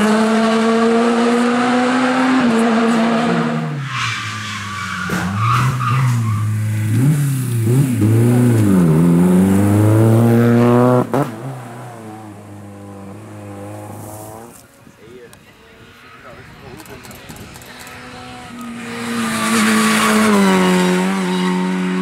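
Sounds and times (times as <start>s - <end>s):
rally car engine revving hard: 0.0s - 3.8s, 5.6s - 14.6s, 17.8s - 22.0s.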